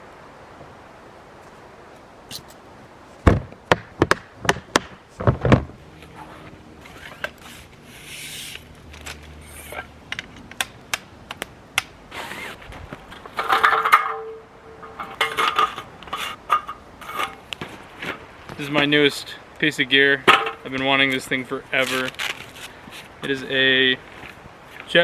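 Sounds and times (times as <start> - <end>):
camp gear clicking and knocking: 3.3 - 5.8, 8.8 - 11.9, 12.6 - 18.6, 20.3 - 20.7
gear rubbing and scraping: 5.2 - 10.7, 12.1 - 18.2.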